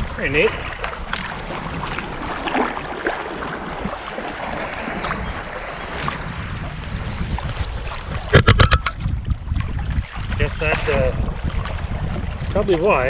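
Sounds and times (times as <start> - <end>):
water splashes: 0.0 - 13.0.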